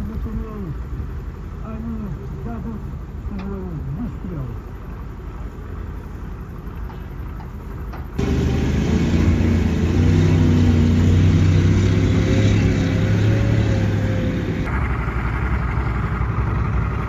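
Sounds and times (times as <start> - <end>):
tank diesel engine revving: 8.2 - 17.0.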